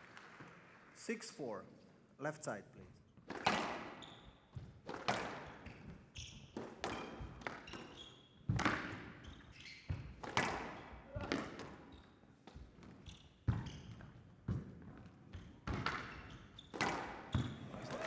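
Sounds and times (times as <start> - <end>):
shoes squeaking on court floor: 17.4 - 18.0.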